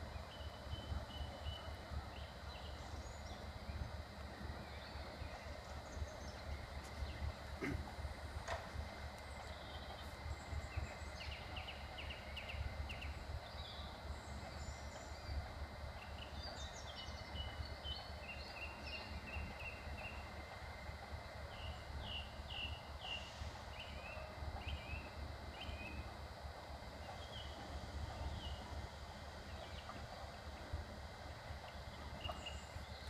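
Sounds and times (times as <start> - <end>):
small birds chirping: 9.1 - 20.4.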